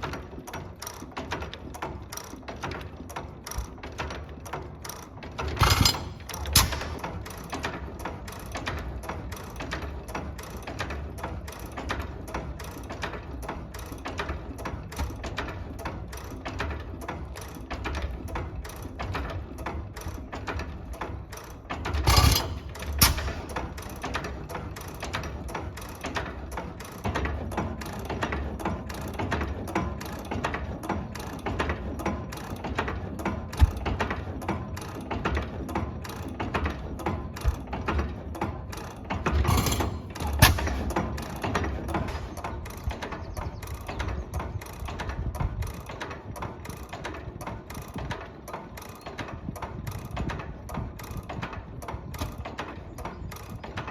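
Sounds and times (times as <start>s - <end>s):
portable engine clattering: 0.7s - 18.1s, 18.7s - 32.9s, 34.8s - 47.2s
engine thumps: 5.5s - 7.2s, 22.0s - 23.8s, 39.3s - 42.2s.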